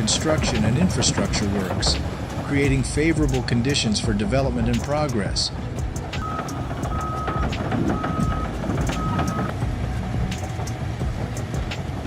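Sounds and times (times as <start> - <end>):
bulldozer diesel engine under load: 0.0 - 12.0
tracks clanking: 0.0 - 12.0
reversing alarm beeps: 6.2 - 9.5.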